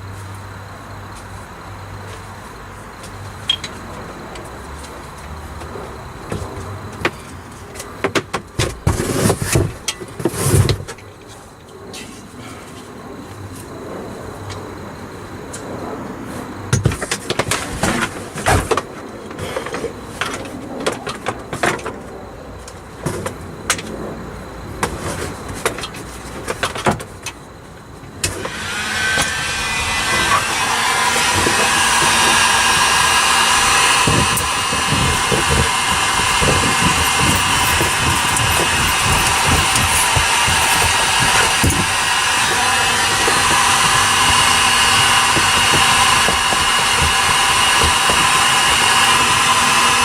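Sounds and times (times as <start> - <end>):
heat gun blowing with whine: 28.2 - 50.0.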